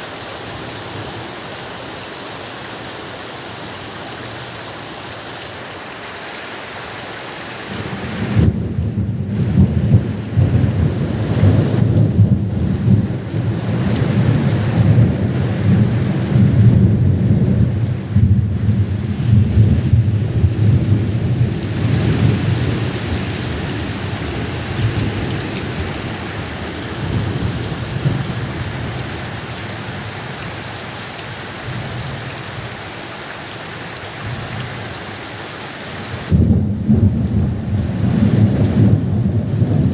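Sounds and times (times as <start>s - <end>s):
steady rain falling: 0.0s - 39.9s
thunder rolling: 8.1s - 29.0s, 36.3s - 39.9s.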